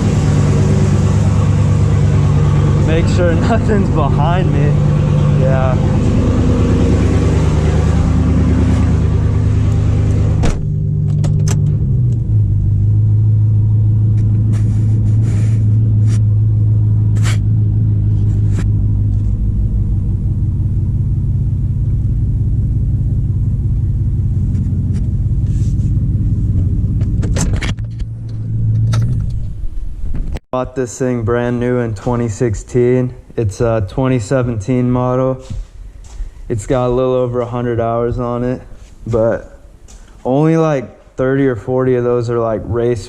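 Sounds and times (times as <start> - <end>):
truck engine idling: 0.0 - 27.2.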